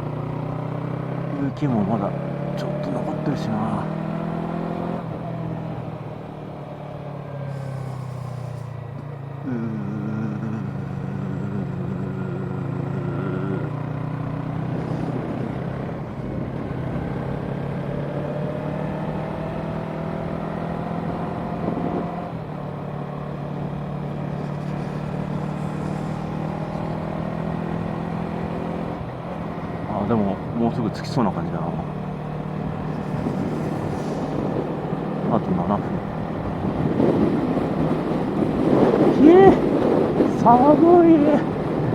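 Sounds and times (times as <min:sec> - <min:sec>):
motorcycle engine running: 0:00.0 - 0:41.9
wind rush: 0:31.8 - 0:41.9.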